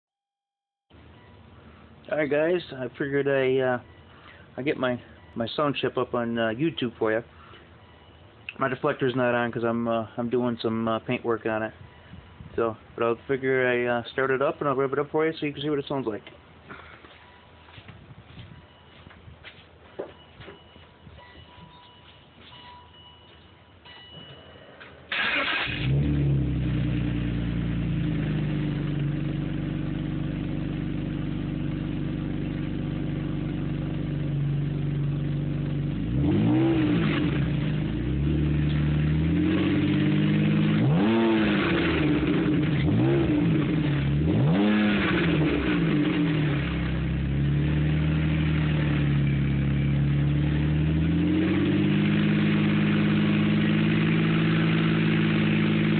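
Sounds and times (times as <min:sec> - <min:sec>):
car engine idling and revving: 0:25.1 - 0:55.9.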